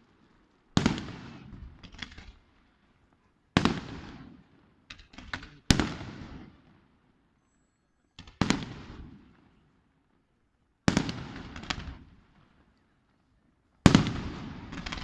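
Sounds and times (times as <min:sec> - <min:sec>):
fireworks bangs echoing: 0:00.0 - 0:02.7, 0:03.5 - 0:07.0, 0:08.2 - 0:09.6, 0:10.8 - 0:12.7, 0:13.8 - 0:15.0.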